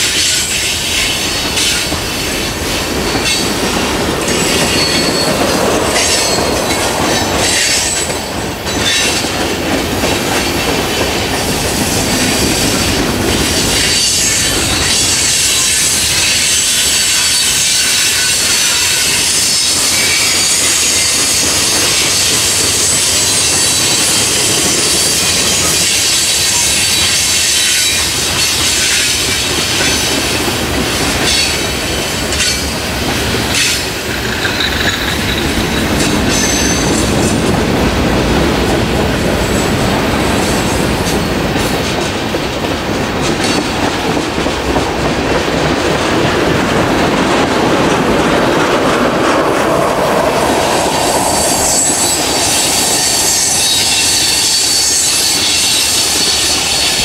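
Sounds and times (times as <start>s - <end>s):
train wheels squealing: 0.0s - 9.5s, 10.9s - 37.5s, 50.2s - 57.0s.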